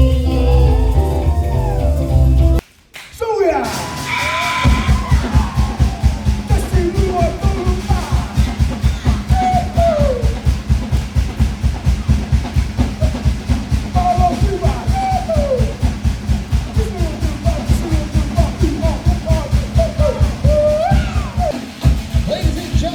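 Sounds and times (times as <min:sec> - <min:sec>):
voices calling out: 0:03.6 - 0:10.5
fast drumbeat: 0:03.6 - 0:22.9.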